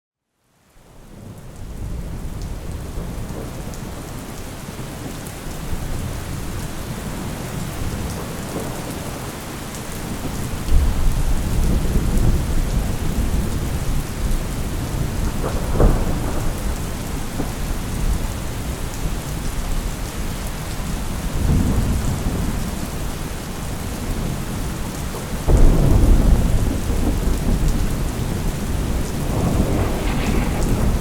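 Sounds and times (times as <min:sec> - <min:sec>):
deep thunder rumble: 0:10.2 - 0:18.6, 0:25.5 - 0:31.0
heavy rain hissing: 0:25.4 - 0:31.0.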